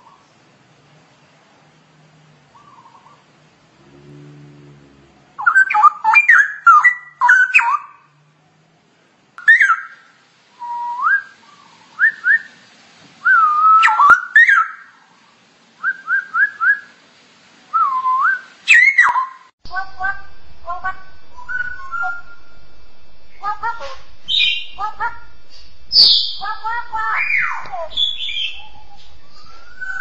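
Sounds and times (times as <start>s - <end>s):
bird singing whistled phrases: 5.4s - 7.9s, 9.4s - 10.0s, 10.6s - 11.4s, 12.0s - 12.6s, 13.2s - 14.9s, 17.7s - 22.6s, 23.3s - 30.0s.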